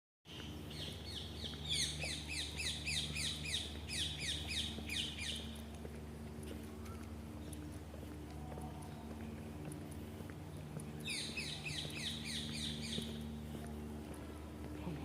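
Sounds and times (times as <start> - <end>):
bird chirping: 0.3 - 5.6, 10.6 - 13.4
faint low hum: 0.4 - 15.0.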